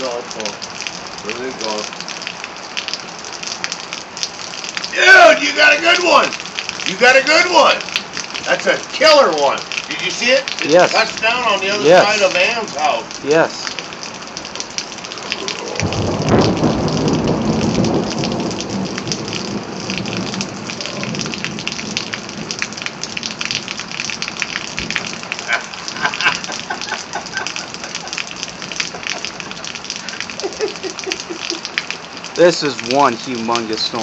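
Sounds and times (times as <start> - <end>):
heavy rain falling: 0.0 - 34.0
low rumble of thunder: 15.2 - 25.2.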